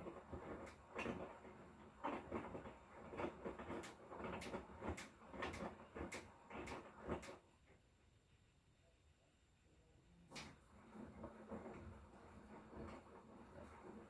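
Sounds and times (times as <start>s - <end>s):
washing machine drum turning: 0.0s - 7.4s.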